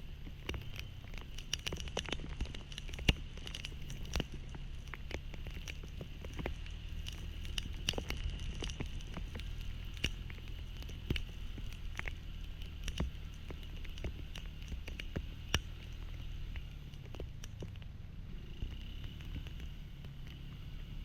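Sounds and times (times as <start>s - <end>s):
low engine hum: 0.0s - 21.0s
rain drops ticking on surface: 0.0s - 21.0s.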